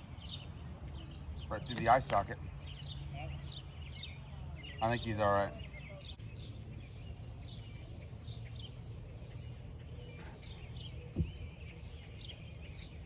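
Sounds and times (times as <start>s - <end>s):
birds chirping: 0.0s - 13.0s
low thump: 11.1s - 11.4s.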